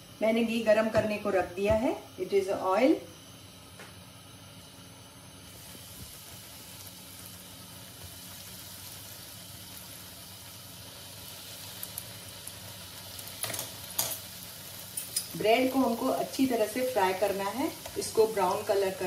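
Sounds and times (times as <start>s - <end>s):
bread sizzling in hot oil: 4.6s - 19.0s.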